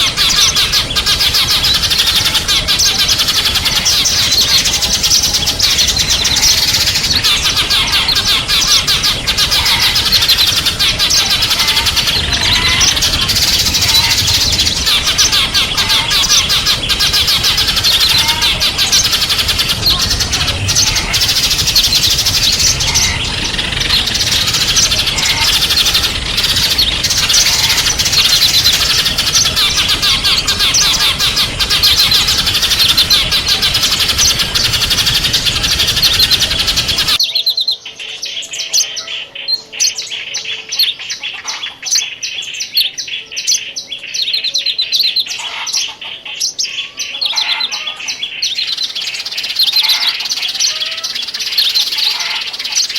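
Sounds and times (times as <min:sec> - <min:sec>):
songbirds chirping and twittering: 0:00.0 - 0:52.9.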